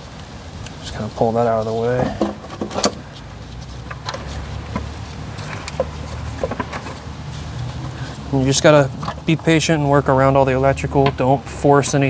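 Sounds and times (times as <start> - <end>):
light clicks and knocks of tools: 1.6 - 9.6.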